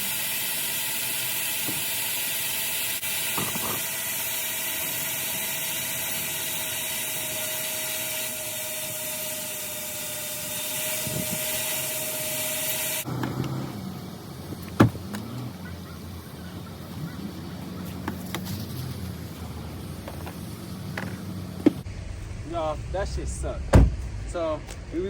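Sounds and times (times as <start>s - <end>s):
vacuum rushing hiss: 0.0s - 24.5s
sharp knock: 23.7s - 24.0s.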